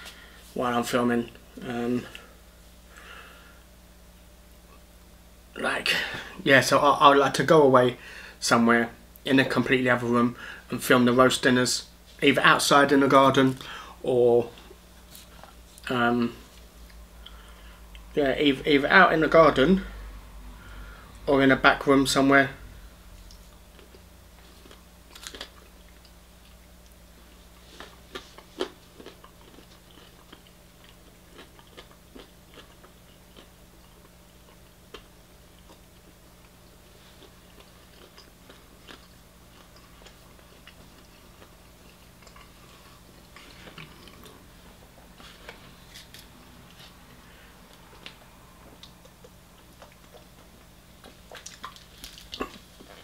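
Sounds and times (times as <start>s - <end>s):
chewing fried chicken: 23.2s - 53.0s.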